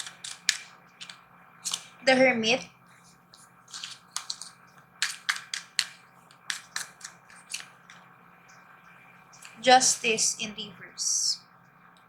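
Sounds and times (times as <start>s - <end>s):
cards flicking and tapping: 0.0s - 2.0s, 3.7s - 8.0s.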